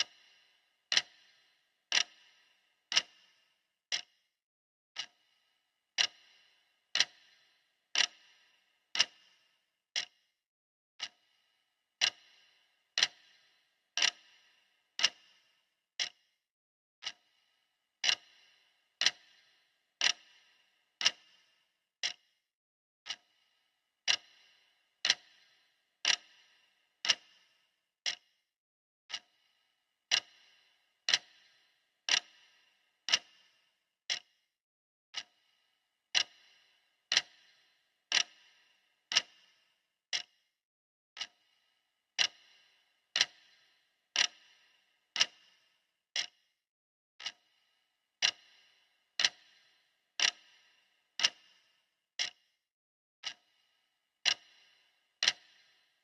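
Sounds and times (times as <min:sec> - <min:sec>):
clock ticking: 0:00.0 - 0:04.2, 0:05.0 - 0:10.2, 0:11.0 - 0:11.4, 0:12.0 - 0:16.3, 0:17.0 - 0:17.4, 0:18.0 - 0:22.3, 0:23.0 - 0:23.4, 0:24.0 - 0:28.4, 0:29.1 - 0:29.5, 0:30.1 - 0:34.4, 0:35.1 - 0:40.4, 0:41.2 - 0:41.6, 0:42.2 - 0:46.5, 0:47.2 - 0:52.5, 0:53.2 - 0:56.0.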